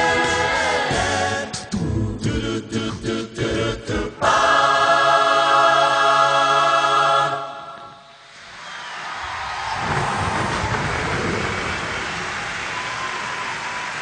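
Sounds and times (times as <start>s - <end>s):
choir singing: 0.0s - 8.0s.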